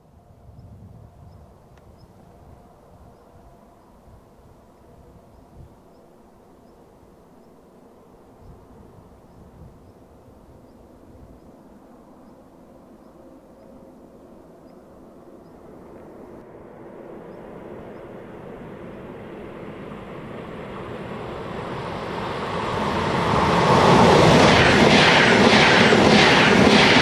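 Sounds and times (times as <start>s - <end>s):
train rumble: 0.0s - 27.0s
train wheels rushing on rail: 17.9s - 27.0s.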